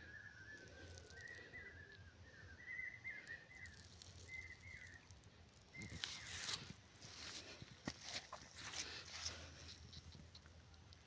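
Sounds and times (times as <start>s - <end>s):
wavering high bird calls: 0.0s - 5.1s.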